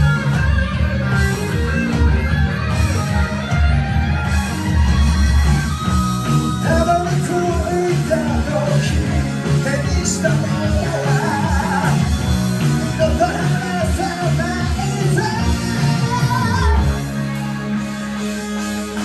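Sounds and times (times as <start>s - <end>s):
hard rock band playing: 0.0s - 19.0s
man singing: 6.6s - 17.0s.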